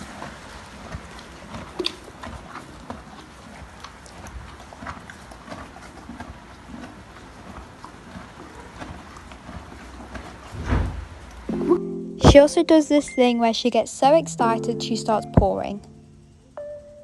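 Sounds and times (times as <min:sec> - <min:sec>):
horse chewing feed: 0:00.0 - 0:11.5.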